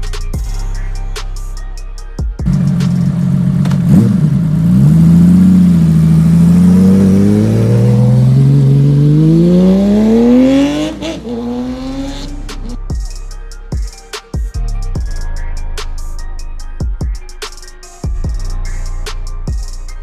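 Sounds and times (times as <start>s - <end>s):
motorcycle engine accelerating: 2.4s - 13.0s.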